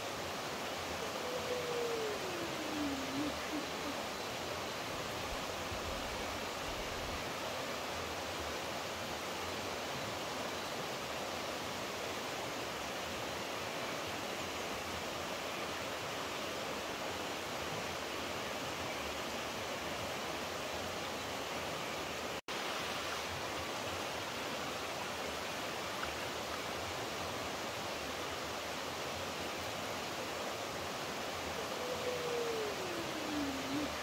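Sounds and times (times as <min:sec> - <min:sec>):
running water: 0:16.6 - 0:34.0.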